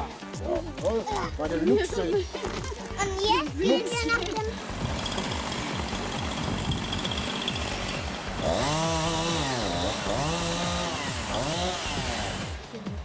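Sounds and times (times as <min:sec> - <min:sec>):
small engine revving: 0:04.1 - 0:13.0.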